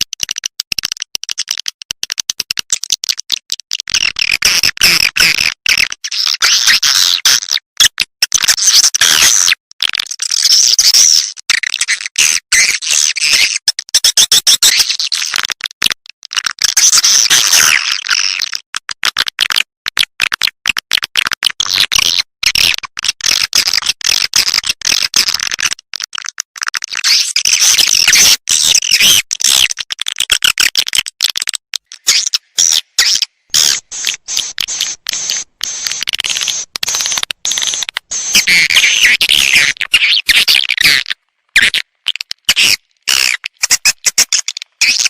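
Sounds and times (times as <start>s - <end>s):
swiftlet lure call from speakers: 31.9s - 41.0s.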